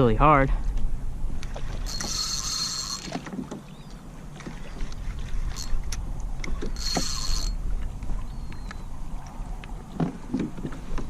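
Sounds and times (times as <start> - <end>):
fishing reel whirring: 1.6 - 3.3, 5.4 - 7.6.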